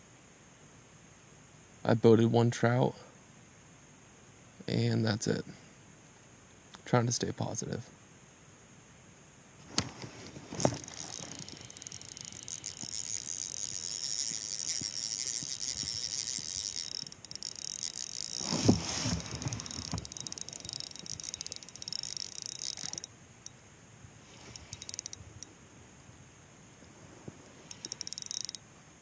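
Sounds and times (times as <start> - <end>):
fishing reel whirring: 9.8 - 23.6, 24.2 - 25.5, 27.6 - 28.6.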